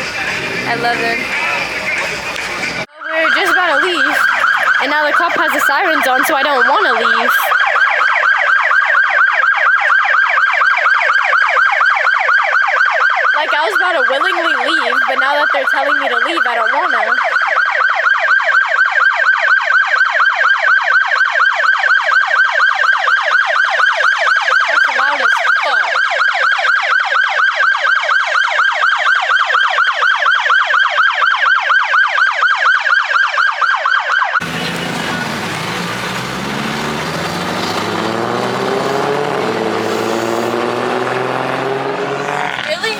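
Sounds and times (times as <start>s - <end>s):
car engine speeding up: 0.0s - 5.9s, 34.4s - 42.9s
police siren warbling: 0.0s - 42.9s.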